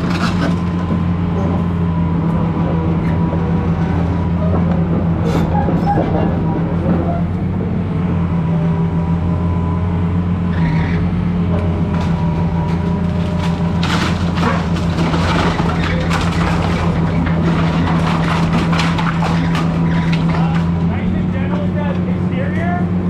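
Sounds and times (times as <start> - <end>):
building material cracking: 0.0 - 1.8, 11.7 - 21.7
excavator diesel engine: 0.0 - 23.0.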